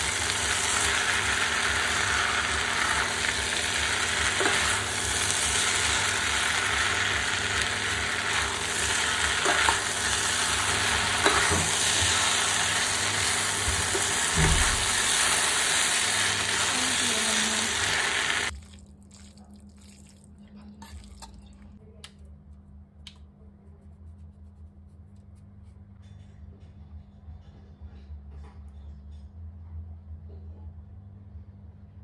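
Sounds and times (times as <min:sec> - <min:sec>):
noodles sizzling in a pan: 0:00.0 - 0:18.5.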